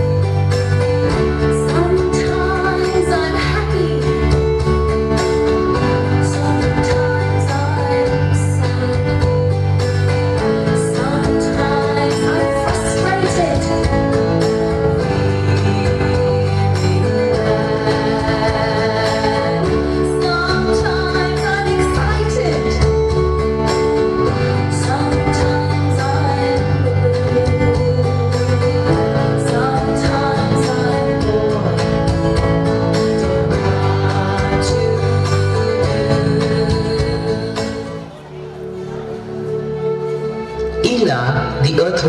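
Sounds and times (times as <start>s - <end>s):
plucked guitar accompaniment: 0.0s - 42.0s
person singing: 10.4s - 38.9s.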